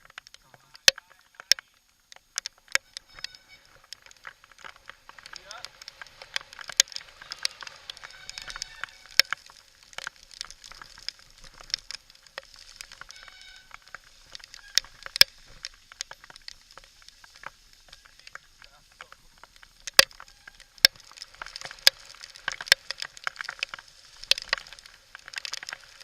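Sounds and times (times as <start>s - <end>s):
mountain bike rattling on rocks: 0.0s - 26.0s
short squeal-like tones: 2.6s - 4.3s, 6.3s - 9.6s, 12.9s - 15.6s, 20.0s - 21.7s.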